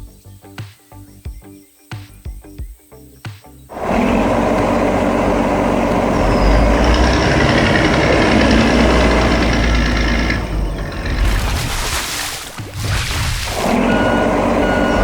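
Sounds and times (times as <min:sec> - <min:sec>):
heavy truck engine rumbling: 0:03.7 - 0:15.0.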